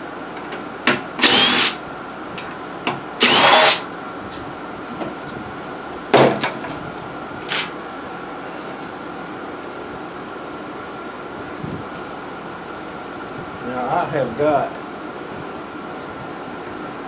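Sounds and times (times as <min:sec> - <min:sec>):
tool rasping: 0:01.2 - 0:01.8, 0:03.2 - 0:03.8.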